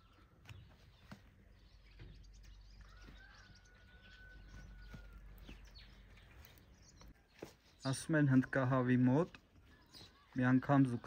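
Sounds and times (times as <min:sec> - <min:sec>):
faint bird chirps: 0:09.6 - 0:11.0.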